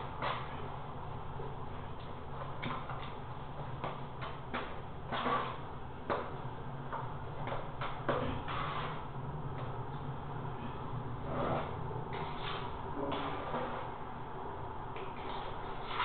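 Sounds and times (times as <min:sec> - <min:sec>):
steady low hum: 0:00.0 - 0:16.0
short scrapes and knocks: 0:04.5 - 0:06.2, 0:07.8 - 0:09.0, 0:11.3 - 0:13.9, 0:15.2 - 0:16.0.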